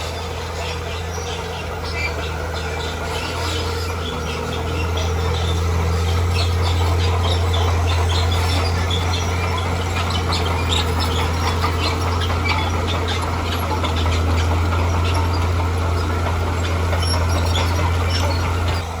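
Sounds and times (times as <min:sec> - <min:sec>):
bulldozer diesel engine running: 0:00.0 - 0:19.0
metallic clicks and squeaks: 0:00.7 - 0:18.8.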